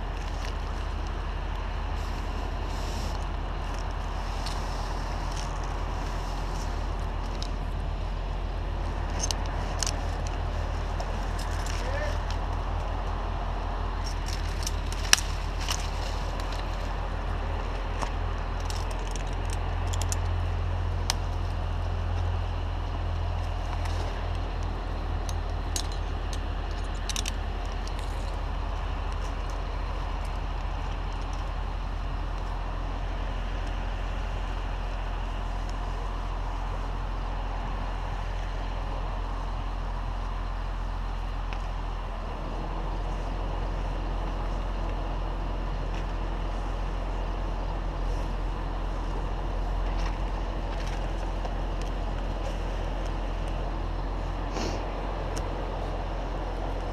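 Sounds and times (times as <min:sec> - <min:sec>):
large engine humming: 0:00.0 - 0:56.9
light metallic clicks and rattles: 0:17.7 - 0:20.5, 0:23.4 - 0:31.6.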